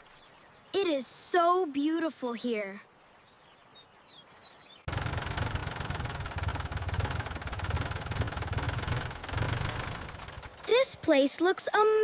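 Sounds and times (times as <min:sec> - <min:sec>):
motor boat engine running: 0:04.9 - 0:11.0.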